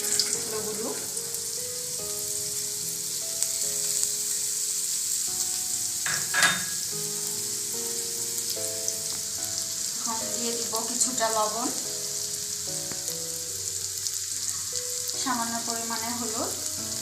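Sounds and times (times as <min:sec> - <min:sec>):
potatoes sizzling in hot oil: 0:00.0 - 0:17.0.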